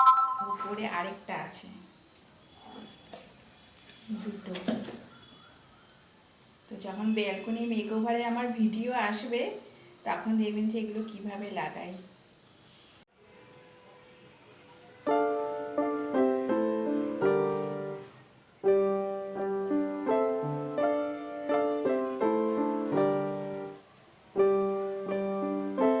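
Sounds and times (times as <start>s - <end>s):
piano music: 0.0s - 0.8s, 15.1s - 26.0s.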